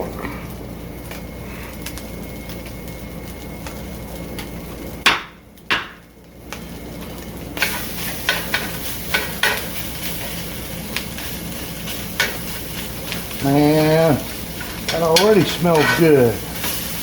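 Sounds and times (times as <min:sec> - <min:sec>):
meat sizzling in a pan: 0:00.0 - 0:17.0
utensil clicking against pan: 0:14.6 - 0:16.7.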